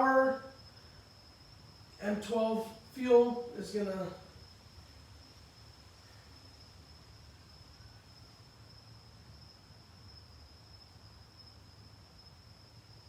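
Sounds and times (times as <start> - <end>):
faint high-pitched tone: 2.0 - 4.4.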